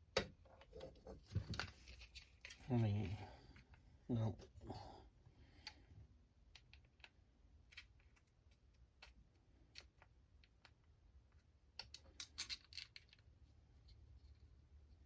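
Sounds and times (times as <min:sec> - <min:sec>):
small plastic parts clicking: 0:09.0 - 0:13.3.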